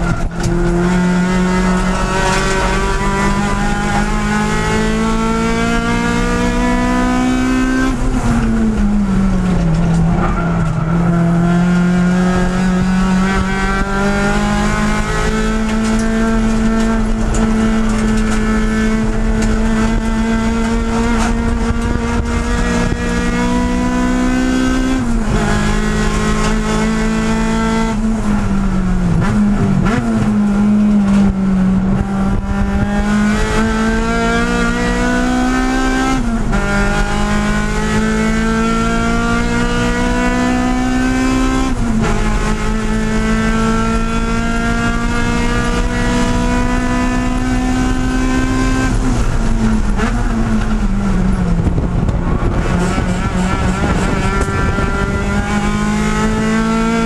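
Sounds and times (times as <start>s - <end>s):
race car engine accelerating: 0.0s - 57.0s.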